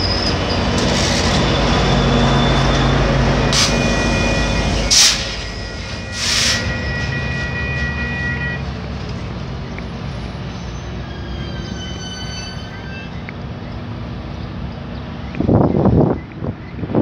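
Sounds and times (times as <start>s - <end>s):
high wheel squeal: 0.0s - 8.7s, 9.6s - 13.8s
train rolling rumble: 0.0s - 17.0s.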